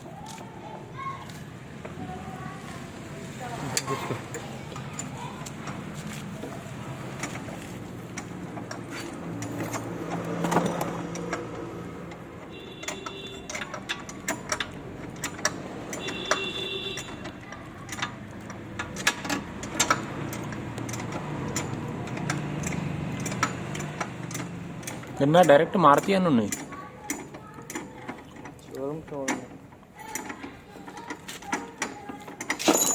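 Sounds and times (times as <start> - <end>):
metallic clicks and knocks: 3.8 - 32.9.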